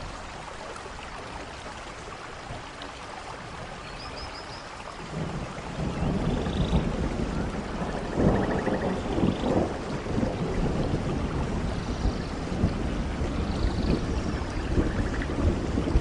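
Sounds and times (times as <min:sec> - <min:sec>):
heavy rain: 0:00.0 - 0:16.0
thunder rumbling: 0:05.1 - 0:16.0.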